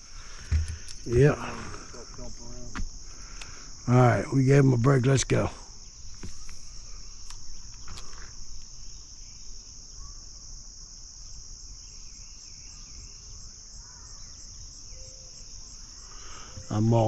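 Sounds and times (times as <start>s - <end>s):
faint chirps: 0.0s - 4.4s, 11.2s - 17.0s
insects chorus: 0.0s - 17.0s.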